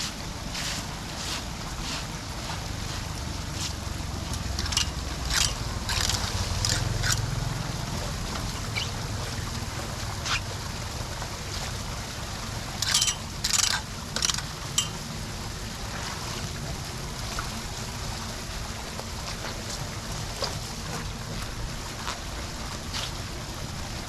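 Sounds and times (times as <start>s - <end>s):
short splashes or scrapes: 0.0s - 9.4s, 12.7s - 15.1s
floodwater sloshing at a drain: 0.0s - 24.0s
low steady rumble: 0.0s - 24.0s.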